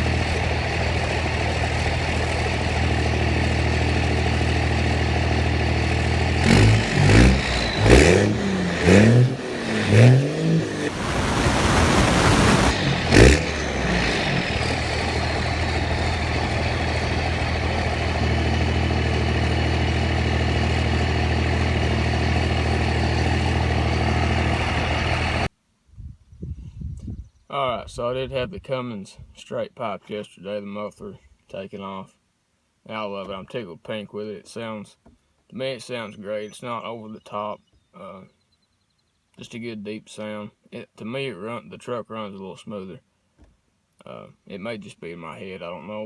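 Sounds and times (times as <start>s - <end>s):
diesel engine idling and revving: 0.0s - 25.5s.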